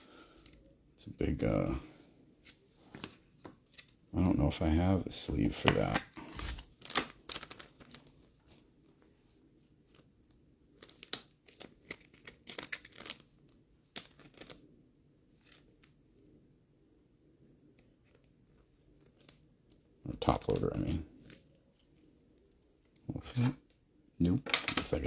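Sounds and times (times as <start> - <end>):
trading cards being handled: 5.4 - 8.6, 10.8 - 13.3, 14.0 - 14.6, 24.3 - 25.0.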